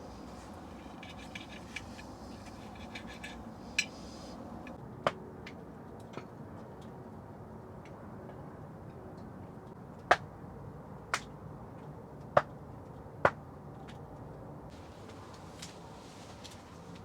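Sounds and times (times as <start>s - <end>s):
wood stove crackling: 0.0s - 4.8s.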